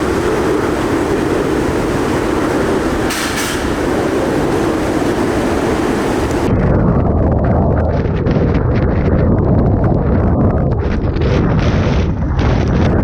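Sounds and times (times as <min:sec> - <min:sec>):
higher hiss burst: 0:00.0 - 0:06.5
strong wind roaring: 0:00.0 - 0:13.0.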